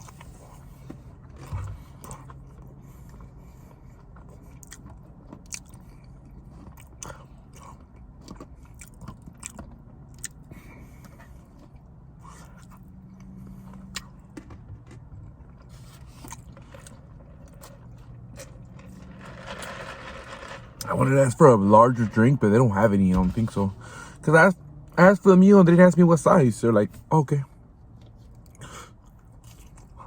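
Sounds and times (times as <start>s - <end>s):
chewing and biting: 0.0s - 18.8s.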